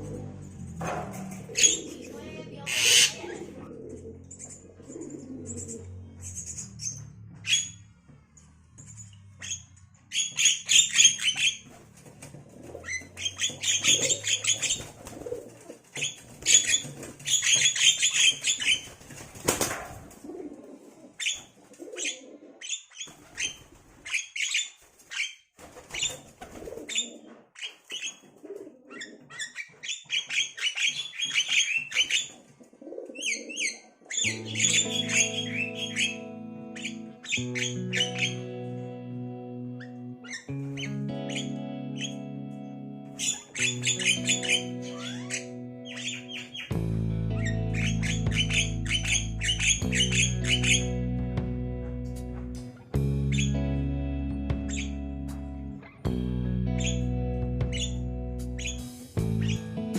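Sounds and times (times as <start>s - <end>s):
bird chicks rasping calls: 0.0s - 7.9s, 8.8s - 19.6s, 21.1s - 38.6s, 39.8s - 42.3s, 43.1s - 51.1s, 54.6s - 55.1s, 56.7s - 57.1s, 57.7s - 59.9s.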